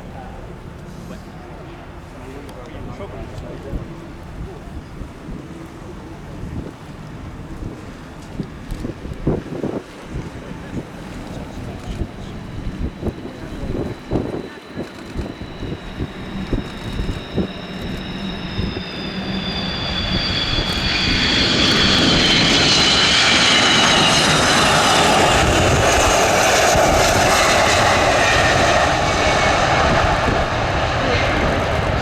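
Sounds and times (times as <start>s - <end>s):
jet engine roar: 6.6s - 32.0s
high jet whine: 10.7s - 32.0s.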